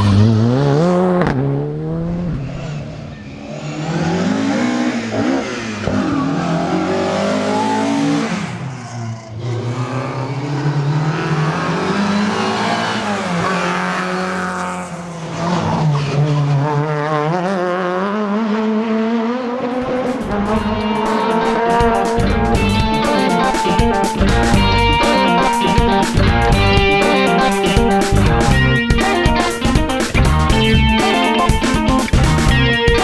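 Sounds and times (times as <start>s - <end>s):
rally car engine accelerating: 0.0s - 33.0s.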